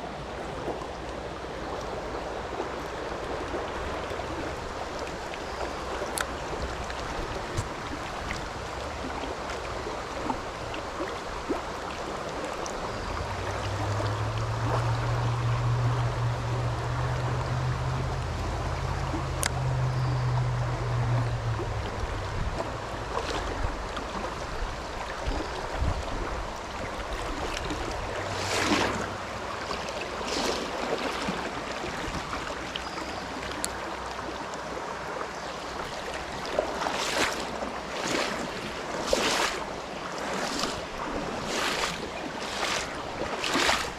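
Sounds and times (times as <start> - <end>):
water rushing in creek: 0.0 - 43.9
low hum: 12.8 - 24.5.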